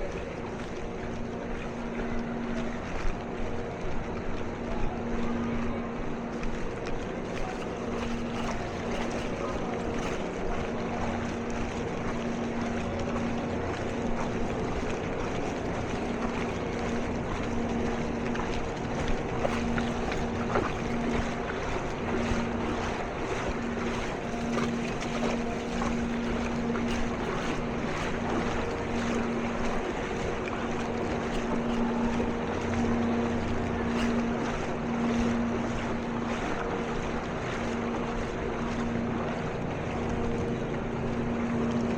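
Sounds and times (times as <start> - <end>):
water wash: 0.0 - 41.9.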